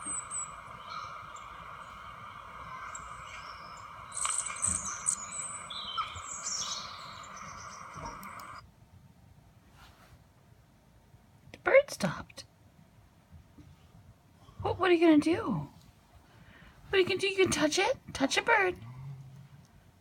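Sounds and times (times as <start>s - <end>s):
recorded birdsong chirping: 0.0s - 8.6s
outdoor background hiss: 0.0s - 20.0s.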